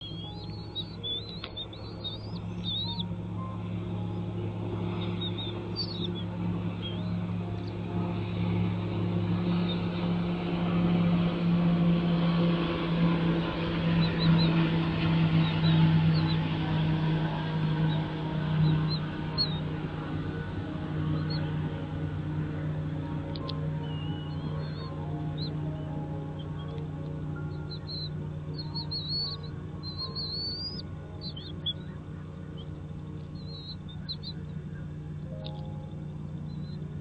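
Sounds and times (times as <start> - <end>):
high bird chirps: 0.0 - 4.3, 4.9 - 7.8, 17.7 - 19.7, 23.3 - 26.8, 27.4 - 36.9
motor drone: 0.0 - 37.0.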